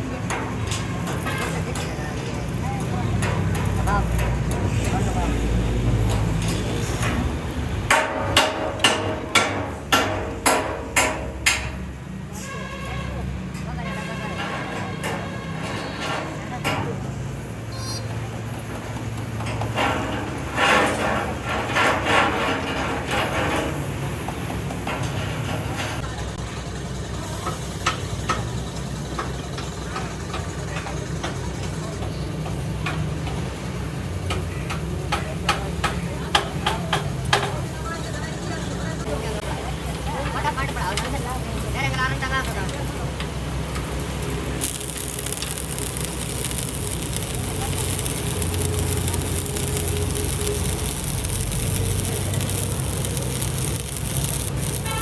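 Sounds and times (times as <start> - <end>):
hammer striking metal: 7.9 - 11.8
low motor hum: 43.7 - 55.0.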